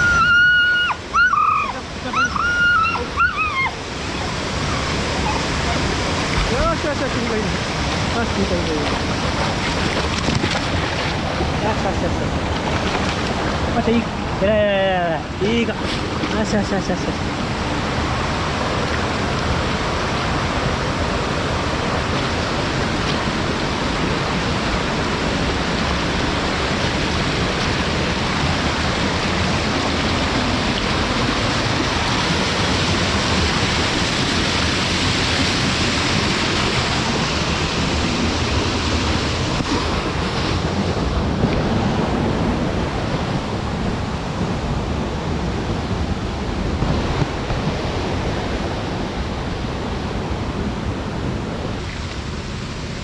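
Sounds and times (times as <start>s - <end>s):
running water rushing: 0.0s - 53.0s.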